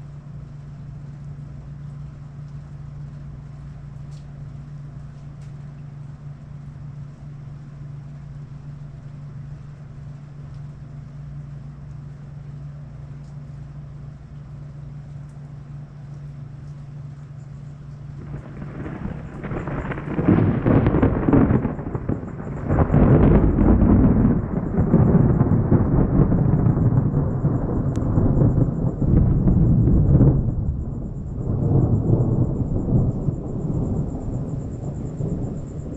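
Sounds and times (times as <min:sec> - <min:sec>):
steady low hum: 0:00.0 - 0:35.9
thunder rumbling: 0:18.1 - 0:35.9.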